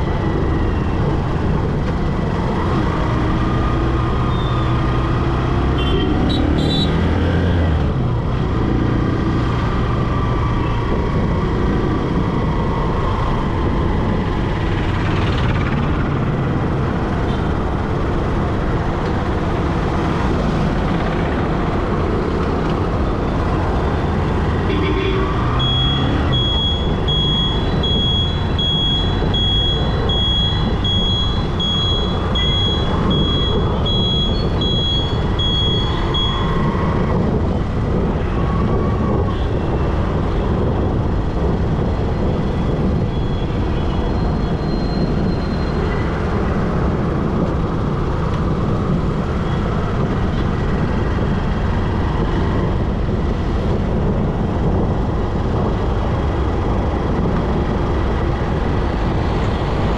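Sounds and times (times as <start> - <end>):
high electronic beep: 4.2 - 4.8, 25.4 - 36.8, 44.0 - 45.9.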